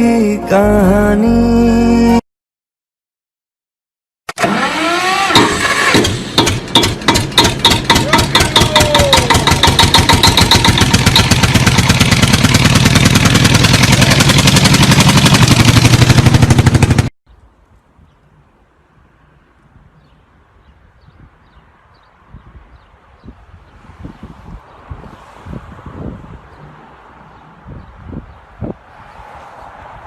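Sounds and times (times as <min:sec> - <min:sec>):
engine running with pulsing beat: 0:05.4 - 0:17.1.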